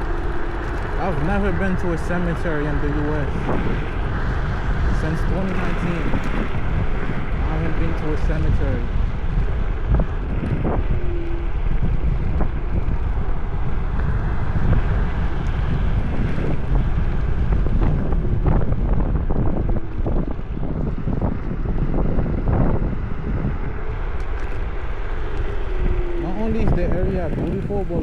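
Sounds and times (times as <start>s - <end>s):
steady low rumble: 0.0s - 28.0s
wind on microphone: 0.0s - 28.0s.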